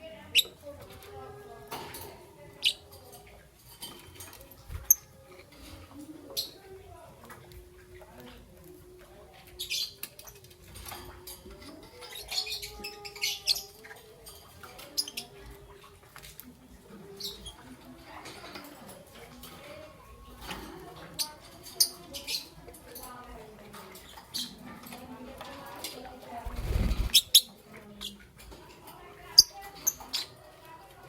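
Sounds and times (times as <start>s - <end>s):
lovebird chirping: 26.5s - 27.5s.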